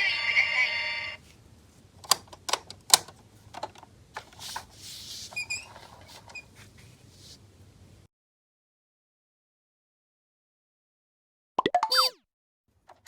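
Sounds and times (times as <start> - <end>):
plastic toys clicking and knocking: 2.0 - 4.3
rubbing brushing sound: 4.3 - 7.5
faint short squeaks: 5.2 - 6.6.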